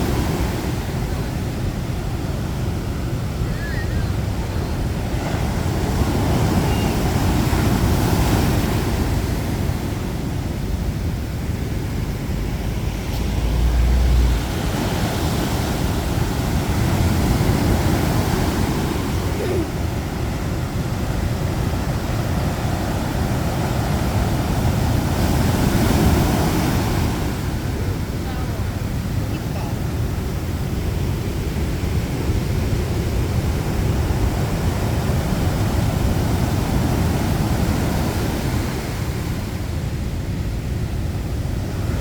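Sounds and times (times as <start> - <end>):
sea surf breaking: 0.0 - 42.0.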